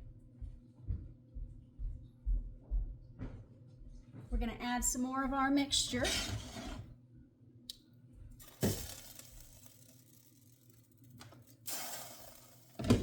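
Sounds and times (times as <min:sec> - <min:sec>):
utensil scrape: 0:05.8 - 0:06.9.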